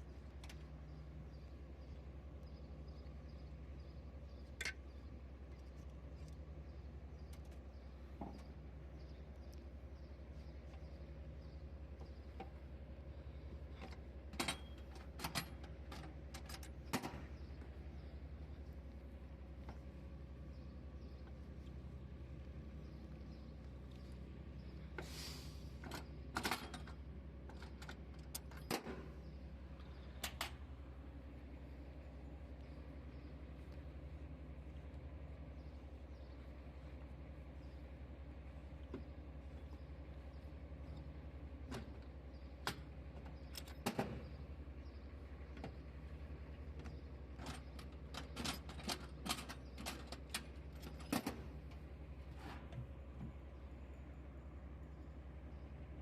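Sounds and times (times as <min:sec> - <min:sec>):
low mechanical hum: 0:00.0 - 0:56.0
sharp metallic clicks and knocks: 0:13.8 - 0:17.3, 0:46.8 - 0:51.5.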